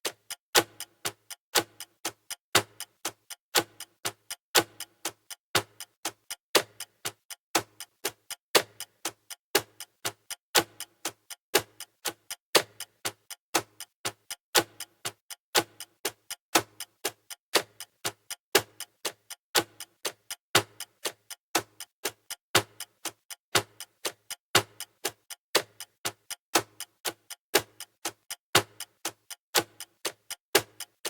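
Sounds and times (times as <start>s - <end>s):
countdown timer ticking: 0.1s - 31.0s.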